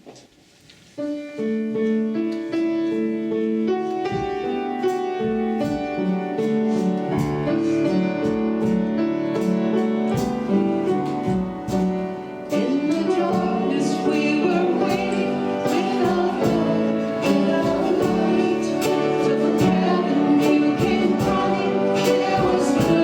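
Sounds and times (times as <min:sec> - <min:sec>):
keyboard and band playing: 0:01.0 - 0:23.0
voices singing: 0:12.4 - 0:23.0.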